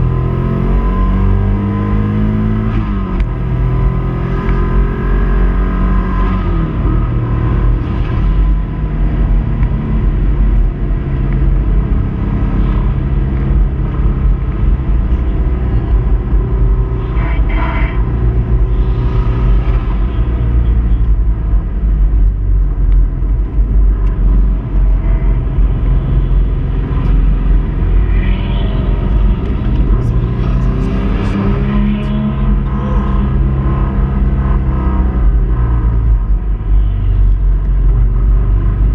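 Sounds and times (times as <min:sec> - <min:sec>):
car engine running hard: 0:00.0 - 0:38.9.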